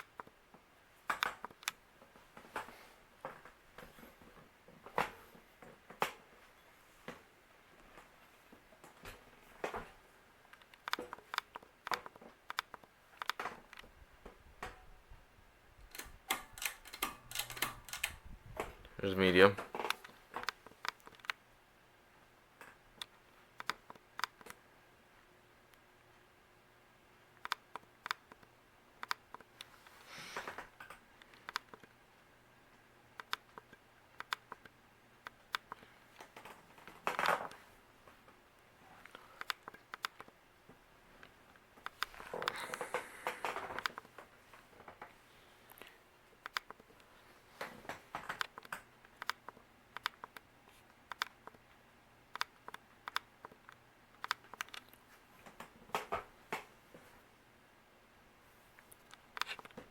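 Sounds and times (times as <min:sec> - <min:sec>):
ceiling fan clicks and ticks: 0:00.0 - 0:59.9
sharp irregular clicks: 0:01.1 - 0:01.8, 0:10.5 - 0:13.9, 0:15.9 - 0:18.3, 0:19.8 - 0:21.4, 0:22.6 - 0:24.6, 0:27.4 - 0:29.7, 0:30.7 - 0:32.0, 0:33.1 - 0:36.3, 0:39.0 - 0:40.4, 0:41.2 - 0:44.1, 0:45.7 - 0:46.8, 0:48.3 - 0:51.7, 0:52.3 - 0:55.0.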